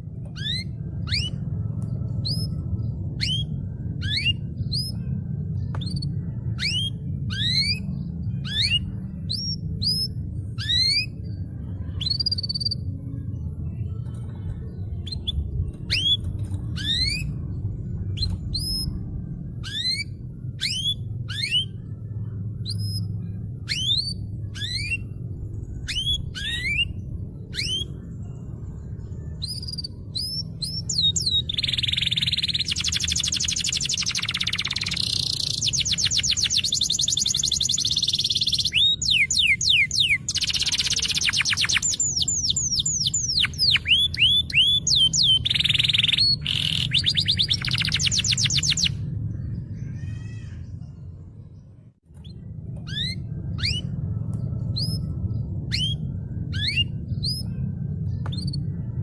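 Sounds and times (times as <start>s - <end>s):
canary singing: 0.0s - 13.0s, 14.0s - 51.1s, 52.2s - 59.0s
steady low hum: 0.0s - 59.0s.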